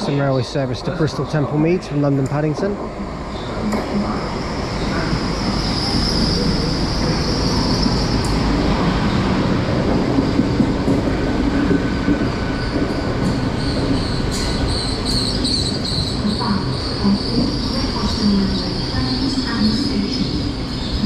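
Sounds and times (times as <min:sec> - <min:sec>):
train rumbling: 0:00.0 - 0:21.0
train brakes squealing: 0:12.5 - 0:21.0.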